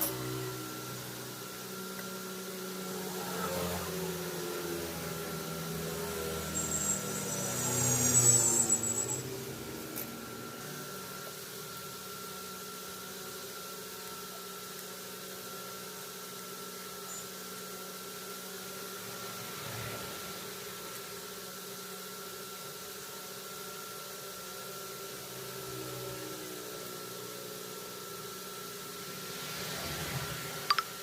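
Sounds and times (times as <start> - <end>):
mixer grinder motor running: 0.0 - 16.4.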